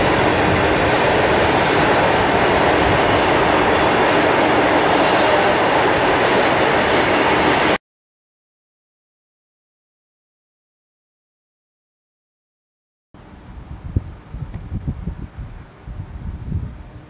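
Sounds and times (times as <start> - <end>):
freight cars rumbling on rail: 0.0 - 7.8, 13.2 - 17.0.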